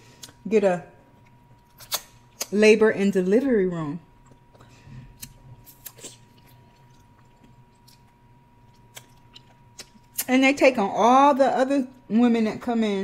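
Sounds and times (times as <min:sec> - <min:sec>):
soft chewing: 0:01.1 - 0:02.5, 0:04.2 - 0:10.3.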